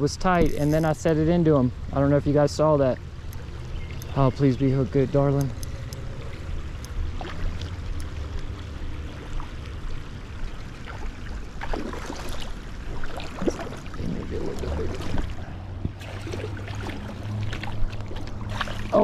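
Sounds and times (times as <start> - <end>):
creek water running: 0.0 - 19.0
fish splashing at surface: 10.7 - 19.0.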